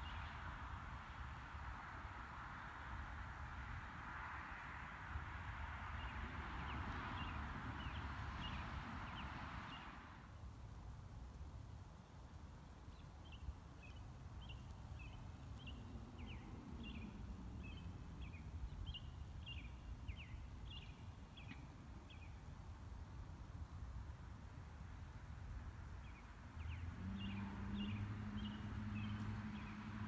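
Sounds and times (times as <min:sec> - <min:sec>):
bird chirping: 0:12.9 - 0:22.4.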